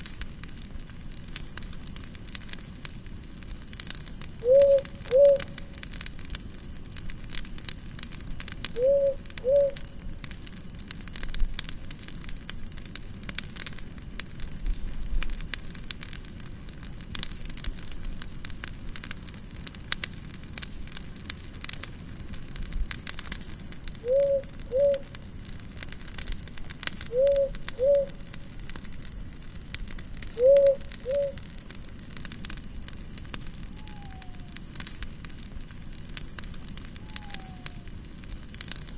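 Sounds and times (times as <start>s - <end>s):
campfire crackling and popping: 0.0s - 38.9s
high chirps: 1.4s - 2.7s, 17.7s - 20.0s.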